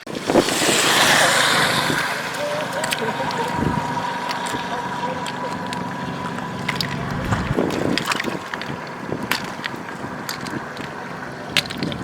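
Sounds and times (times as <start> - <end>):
floodwater running: 0.0 - 11.9
wind on microphone: 6.5 - 8.6.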